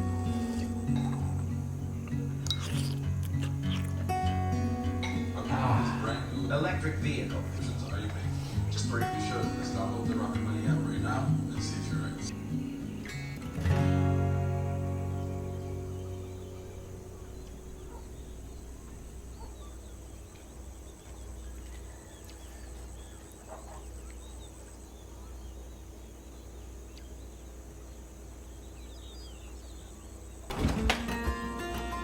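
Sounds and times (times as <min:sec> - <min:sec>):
faint birds chirping: 0:00.0 - 0:30.9
thin hum: 0:05.1 - 0:22.5
steady low rumble: 0:14.3 - 0:21.9.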